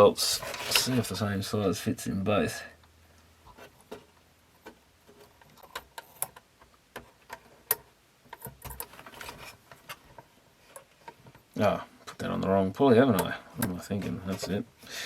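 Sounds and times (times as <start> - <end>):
plastic parts clicking and tapping: 13.1 - 14.6.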